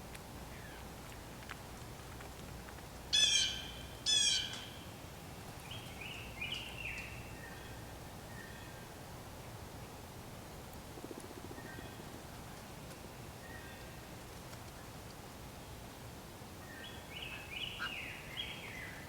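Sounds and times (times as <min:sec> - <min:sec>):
blue jay calling: 0:03.1 - 0:04.8.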